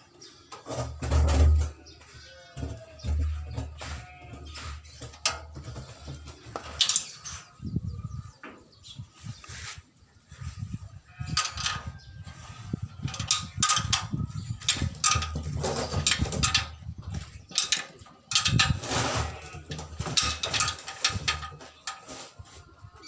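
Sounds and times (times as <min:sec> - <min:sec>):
metal tools clicking and clanking: 0:05.0 - 0:07.4, 0:11.2 - 0:12.0, 0:13.0 - 0:22.2
low rumbling handling noise: 0:10.6 - 0:22.1.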